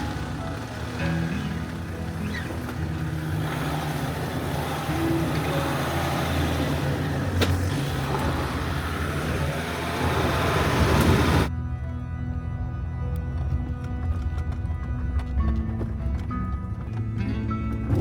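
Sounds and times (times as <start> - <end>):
road noise: 0.0 - 18.0
vehicle engine hum: 0.0 - 18.0.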